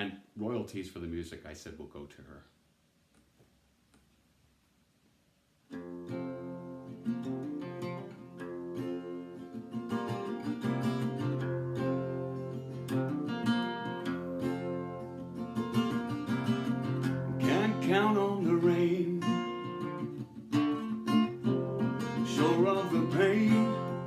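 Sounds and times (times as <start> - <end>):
acoustic guitar chords: 5.7 - 24.0.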